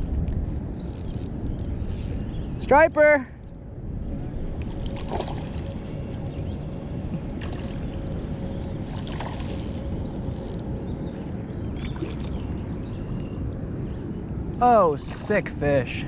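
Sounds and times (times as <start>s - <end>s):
wind: 0.0s - 16.0s
faint splashes: 4.6s - 6.0s, 7.2s - 9.7s, 11.2s - 13.2s.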